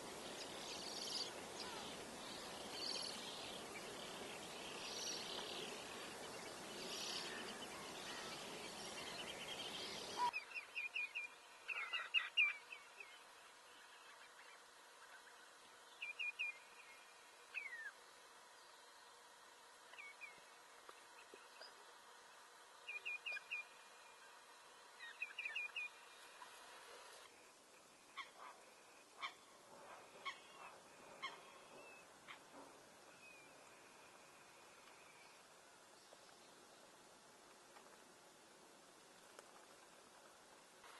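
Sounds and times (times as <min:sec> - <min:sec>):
faint outdoor background: 0:00.0 - 0:40.9
small birds chirping: 0:00.1 - 0:19.2.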